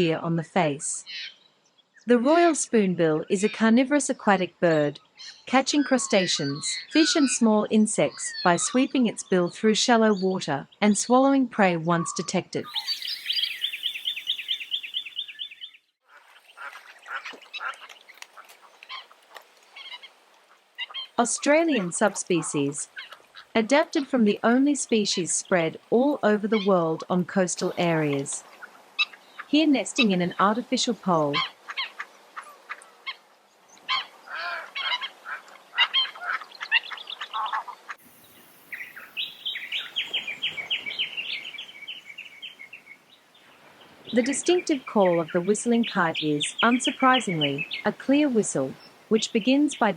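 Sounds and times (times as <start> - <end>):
birds chirping: 12.6 - 19.0, 36.4 - 49.9
irregular bird calls: 12.6 - 24.4, 31.4 - 49.9
rapid high bird notes: 12.7 - 15.8
osprey whistled chirps: 12.7 - 15.9, 38.1 - 43.0.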